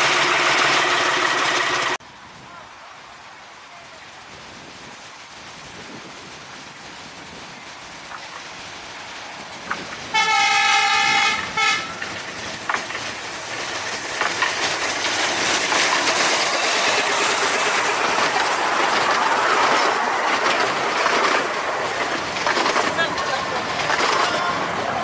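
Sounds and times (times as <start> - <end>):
locomotive engine: 0.0 - 2.0, 7.0 - 25.0
train wheels clattering over rails: 0.0 - 2.0, 9.5 - 25.0
diesel locomotive horn: 10.1 - 12.1.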